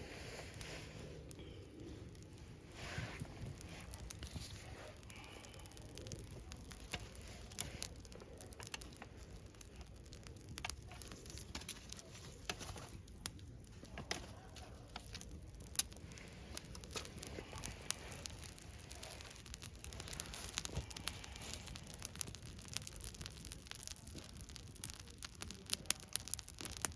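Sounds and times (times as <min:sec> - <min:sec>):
campfire crackling and popping: 0:00.0 - 0:26.9.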